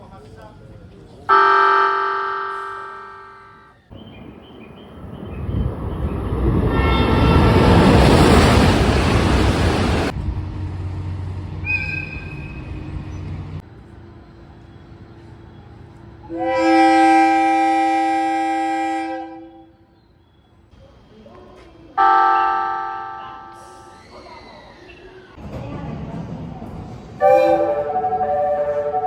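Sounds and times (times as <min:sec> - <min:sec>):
train horn: 0:01.3 - 0:03.8, 0:06.6 - 0:08.6, 0:16.2 - 0:19.8, 0:22.0 - 0:23.9, 0:27.2 - 0:29.0
passing train roar: 0:01.3 - 0:19.9, 0:21.9 - 0:29.0.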